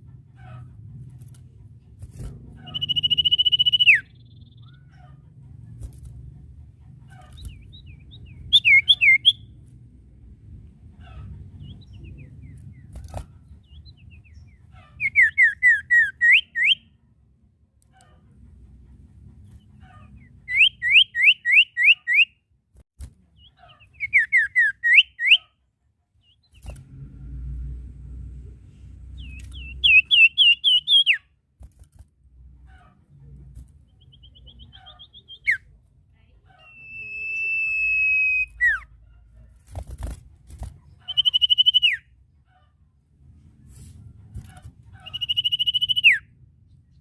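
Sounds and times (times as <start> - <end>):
bird whistling song: 2.7 - 4.8, 7.3 - 9.6, 13.6 - 16.9, 20.4 - 22.4, 23.4 - 25.5, 29.2 - 31.3, 34.0 - 35.7, 36.6 - 38.9, 41.0 - 42.1, 45.0 - 46.4
songbird trilled whistle: 2.8 - 4.6, 8.5 - 9.4, 36.7 - 38.8, 45.1 - 46.3.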